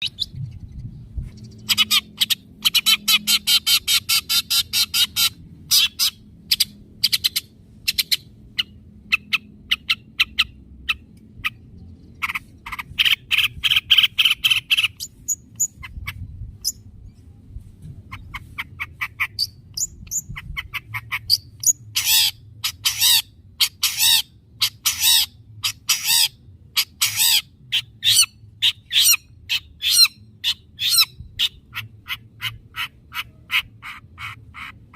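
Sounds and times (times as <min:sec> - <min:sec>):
bird singing trills: 0:00.0 - 0:17.2, 0:18.1 - 0:34.8
bird chattering: 0:01.4 - 0:16.8, 0:18.1 - 0:34.9.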